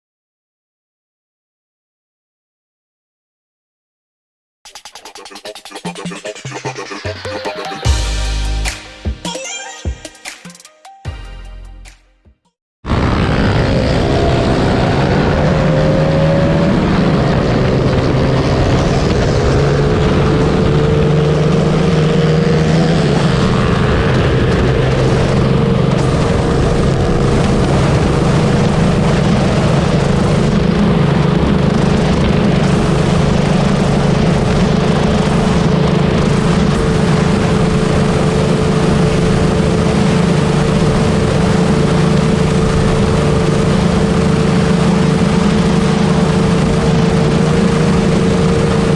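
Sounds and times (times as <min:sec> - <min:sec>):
wind rushing over microphone: 0:12.9 - 0:48.9
motorcycle engine cruising: 0:13.6 - 0:48.9.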